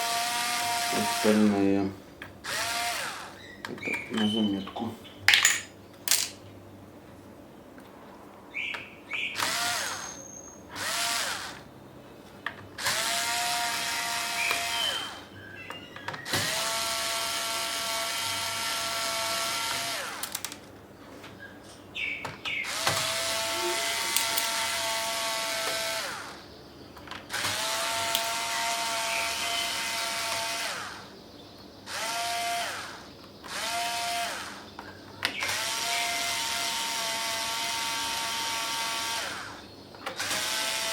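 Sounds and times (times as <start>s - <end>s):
electric screwdriver whirring: 2.5s - 3.2s, 22.7s - 26.3s, 27.3s - 30.9s.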